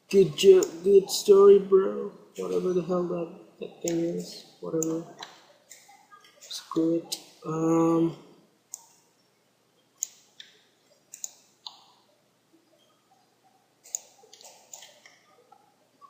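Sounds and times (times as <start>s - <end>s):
computer mouse clicks: 8.7s - 9.0s, 10.0s - 12.0s, 13.8s - 15.6s.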